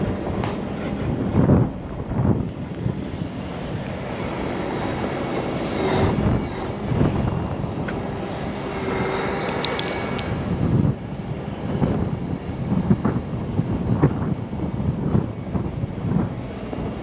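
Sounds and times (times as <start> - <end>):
faint high whine: 3.9 - 12.3.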